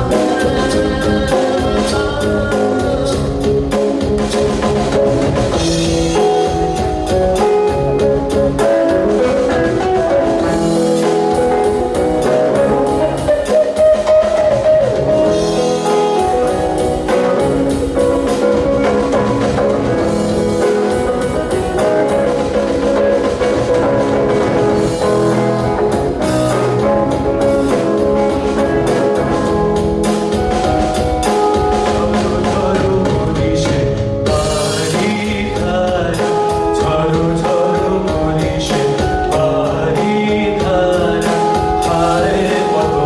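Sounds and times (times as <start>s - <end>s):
instrumental band music: 0.0s - 43.0s
steady drum beat: 0.0s - 43.0s.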